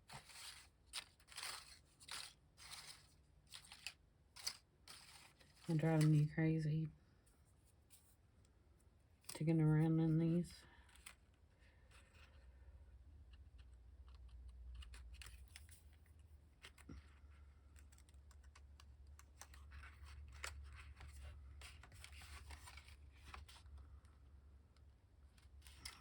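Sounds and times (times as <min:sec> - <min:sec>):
stiff paper cards being handled: 0:00.0 - 0:06.3, 0:10.7 - 0:26.0
low steady hum: 0:00.0 - 0:13.6.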